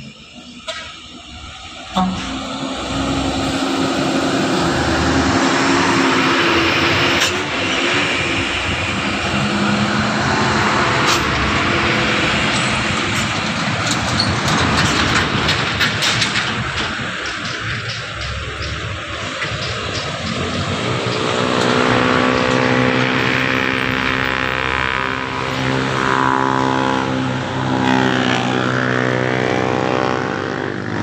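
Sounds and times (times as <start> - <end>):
truck engine under load: 0.0 - 31.0
knocks and rattles: 4.6 - 26.1.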